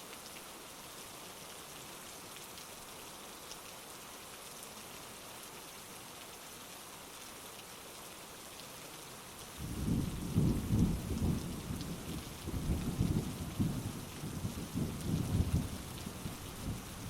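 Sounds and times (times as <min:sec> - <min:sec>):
heavy rain hissing: 0:00.0 - 0:17.0
rolling thunder: 0:09.6 - 0:16.8.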